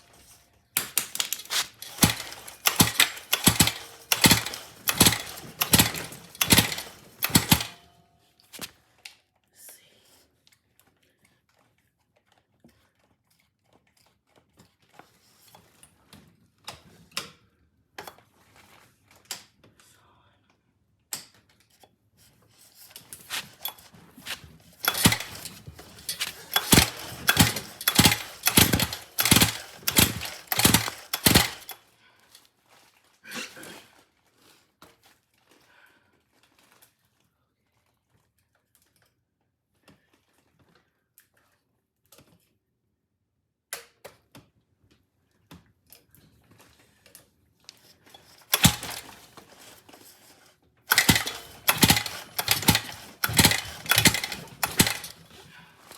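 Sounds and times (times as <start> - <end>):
pull-starter knocks and clacks: 0.8 - 7.8, 23.1 - 31.8, 48.1 - 50.1, 50.9 - 55.9.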